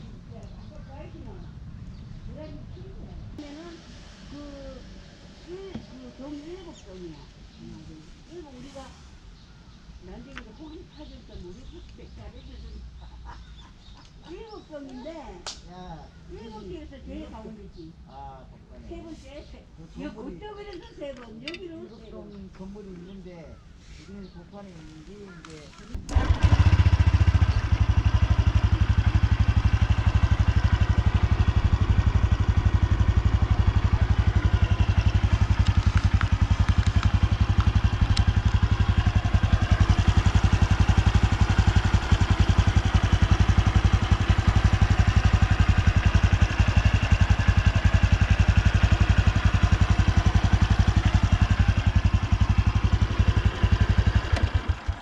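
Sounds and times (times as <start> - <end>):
motorcycle engine idling: 26.0 - 55.0.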